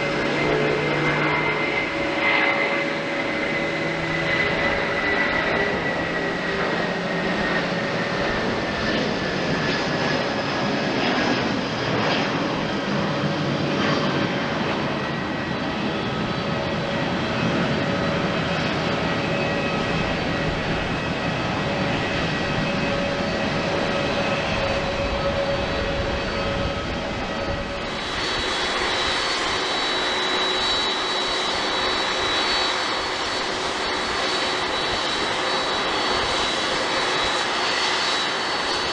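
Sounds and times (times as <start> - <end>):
jet engines whining: 0.0 - 38.9.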